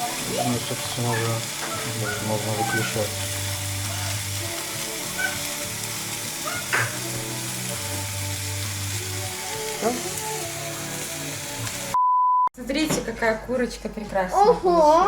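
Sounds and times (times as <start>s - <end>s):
bread frying in butter sizzling: 0.0s - 12.0s.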